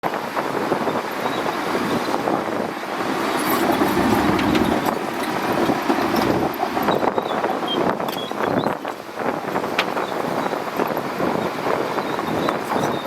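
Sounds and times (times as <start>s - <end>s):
bulldozer engine rumble: 1.0s - 11.5s.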